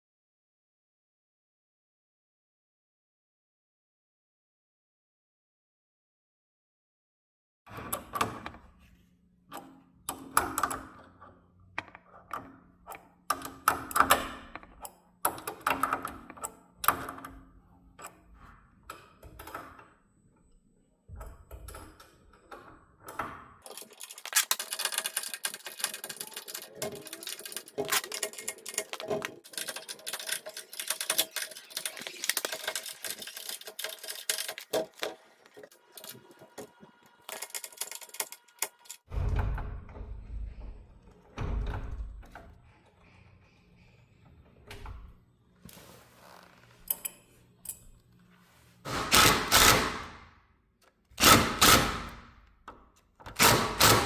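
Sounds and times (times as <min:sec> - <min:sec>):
metal rattling clatter: 0:23.6 - 0:35.1
metal parts knocking and clinking: 0:23.6 - 0:39.1.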